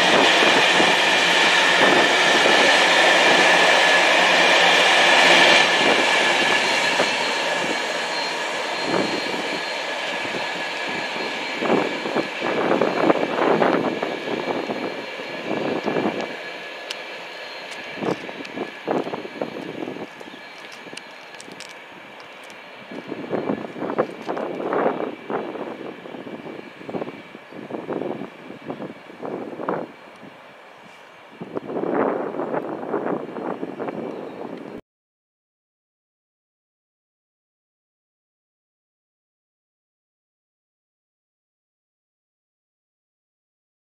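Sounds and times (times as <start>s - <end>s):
freight train rumbling: 0.0s - 34.8s.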